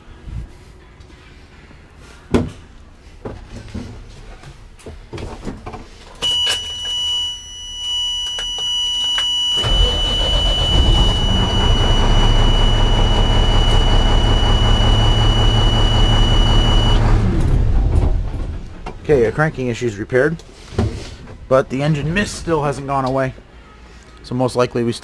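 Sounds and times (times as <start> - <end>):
high-pitched dash warning buzzer: 6.2 - 17.2
diesel truck engine cranking and running: 6.2 - 20.0.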